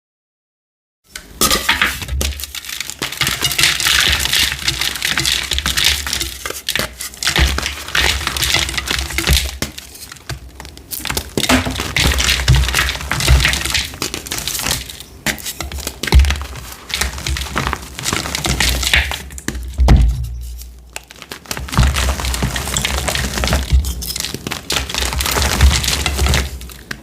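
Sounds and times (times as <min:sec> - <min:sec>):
chalk being crushed: 0:01.5 - 0:19.2.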